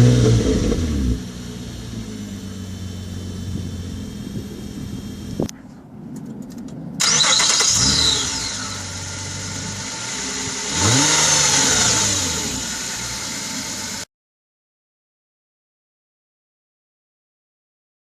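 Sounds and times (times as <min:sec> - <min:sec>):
car engine idling and revving: 0:00.0 - 0:14.1.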